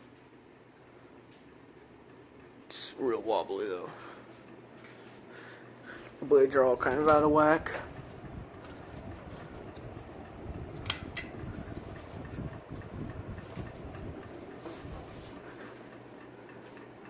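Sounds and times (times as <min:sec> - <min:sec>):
ceiling fan whirring: 0:00.0 - 0:17.0
sharp clicks: 0:10.8 - 0:11.7.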